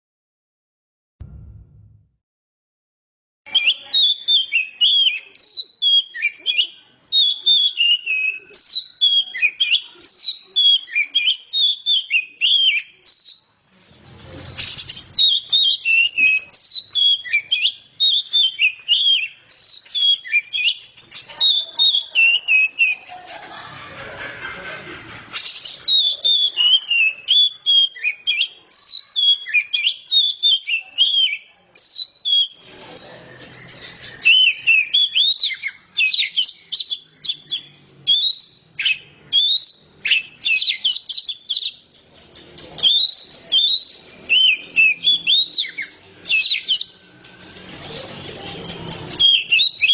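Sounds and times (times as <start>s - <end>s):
bursts of noise: 1.2s - 2.1s
bird singing whistled phrases: 3.5s - 13.7s, 14.6s - 23.1s, 25.4s - 41.9s, 42.7s - 49.9s.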